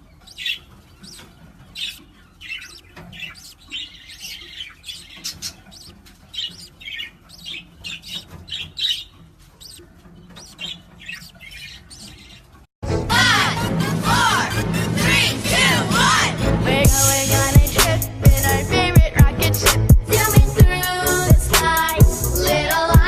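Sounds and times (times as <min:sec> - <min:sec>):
bird chirping and squawking: 0:00.0 - 0:12.6.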